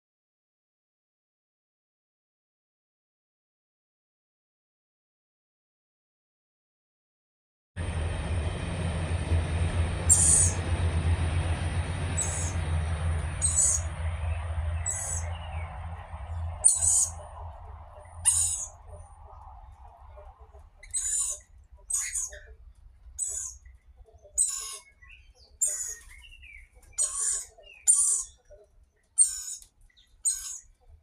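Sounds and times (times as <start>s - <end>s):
low rumble: 7.8s - 24.4s
birds high-pitched calls: 9.8s - 31.0s.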